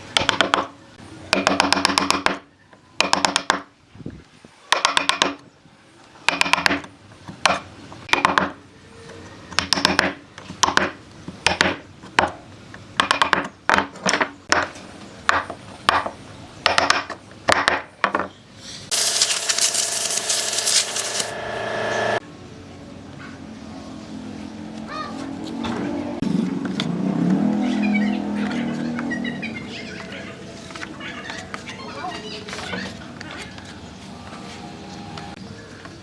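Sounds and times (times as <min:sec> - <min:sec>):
power tool running: 0:18.9 - 0:22.2.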